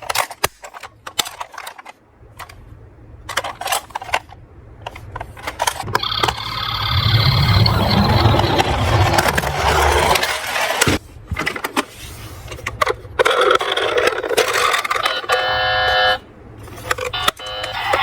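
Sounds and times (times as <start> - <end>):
toy cars rolling and clattering: 0.0 - 2.6, 3.2 - 18.0
short electronic tone: 6.0 - 10.0.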